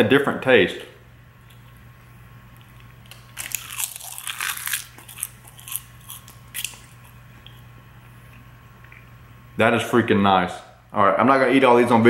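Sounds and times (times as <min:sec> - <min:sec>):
crunching crisp seaweed snack: 0:02.6 - 0:07.5.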